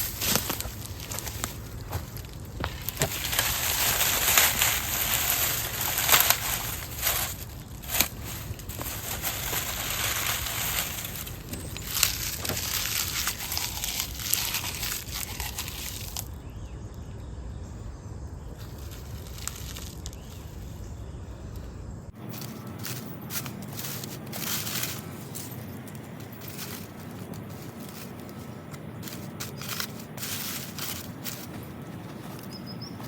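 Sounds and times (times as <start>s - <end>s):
dry leaves crunching: 0.0s - 16.6s, 18.4s - 33.0s.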